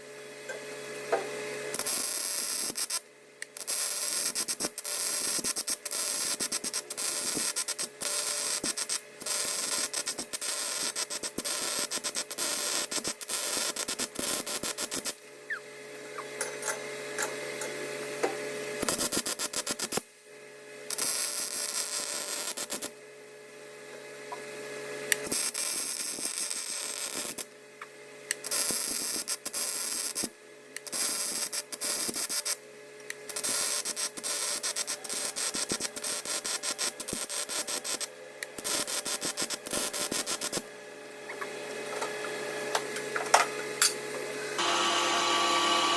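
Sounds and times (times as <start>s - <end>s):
welding arc crackling: 1.7s - 15.2s, 18.8s - 20.1s, 20.9s - 23.0s, 25.2s - 27.6s, 28.4s - 32.6s, 33.2s - 40.7s.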